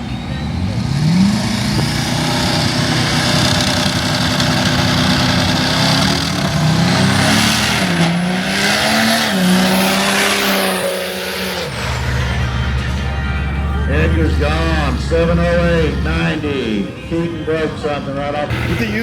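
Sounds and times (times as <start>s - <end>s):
diesel truck engine accelerating: 0.0s - 19.0s
thin high whistle: 9.3s - 12.8s.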